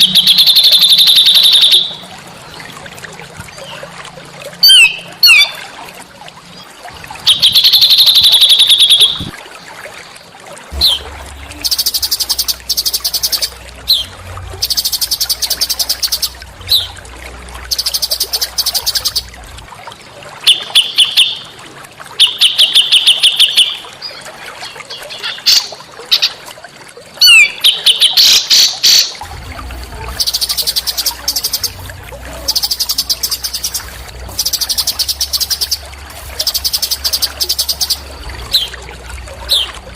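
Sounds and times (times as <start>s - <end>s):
bird chirps and whistles: 0.0s - 2.0s, 7.3s - 9.3s
songbird trilling: 0.0s - 2.0s, 7.3s - 9.3s, 11.6s - 16.9s, 17.7s - 19.2s, 30.1s - 35.8s, 36.4s - 38.8s.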